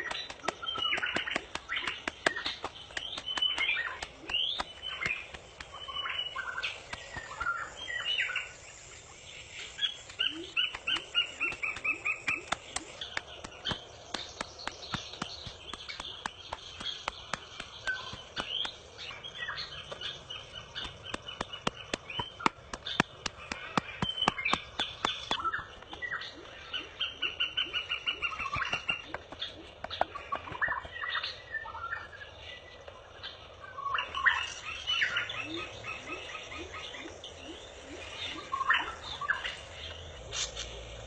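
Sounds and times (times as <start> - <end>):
fast sharp clicks: 0.0 - 7.8, 10.0 - 19.1, 19.9 - 26.2
birds chirping: 0.0 - 41.0.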